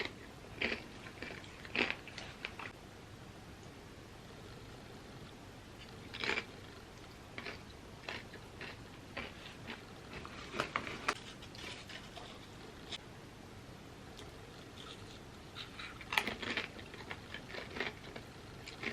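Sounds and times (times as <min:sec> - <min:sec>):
chips crunching while chewed: 0:00.0 - 0:02.7, 0:05.8 - 0:06.5, 0:07.4 - 0:11.2, 0:14.6 - 0:18.9.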